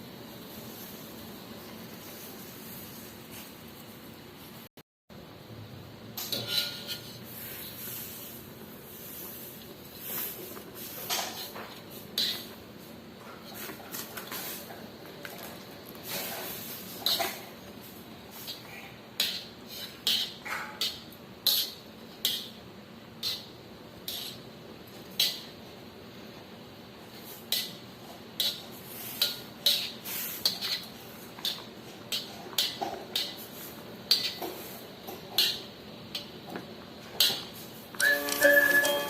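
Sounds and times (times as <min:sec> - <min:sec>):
utensils clinking on dishes: 0:06.2 - 0:07.1, 0:37.1 - 0:39.0.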